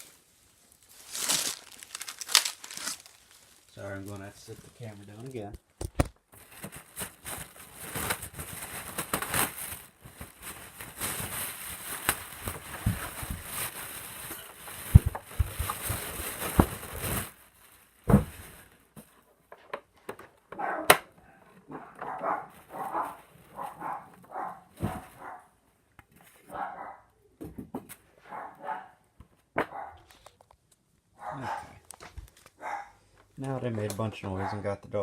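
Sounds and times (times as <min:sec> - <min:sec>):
styrofoam packaging crunching: 0:00.0 - 0:05.5, 0:06.3 - 0:18.9
dogs barking: 0:20.5 - 0:21.1, 0:21.7 - 0:25.6, 0:26.5 - 0:27.1, 0:28.2 - 0:29.0, 0:29.6 - 0:30.0, 0:31.2 - 0:31.8, 0:32.6 - 0:33.0, 0:34.4 - 0:34.7.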